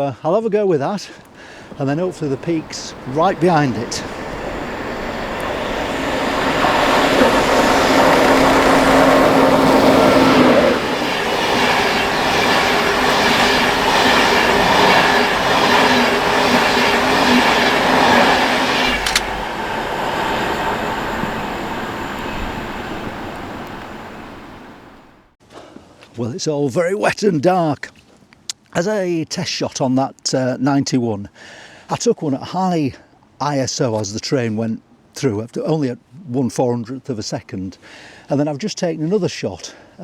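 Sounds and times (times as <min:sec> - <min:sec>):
wheels clattering over rail joints: 0:01.2 - 0:25.2
train rushing past: 0:01.2 - 0:25.4
electric whine: 0:01.6 - 0:25.3
sharp click: 0:18.9 - 0:19.3.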